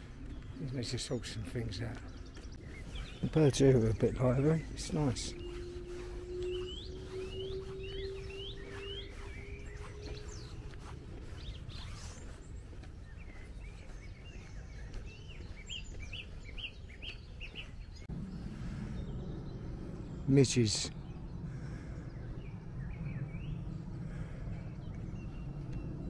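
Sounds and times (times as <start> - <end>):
low rumble: 0.0 - 13.8, 17.2 - 26.0
songbirds chirping: 0.0 - 26.0
steady hum: 2.7 - 11.4.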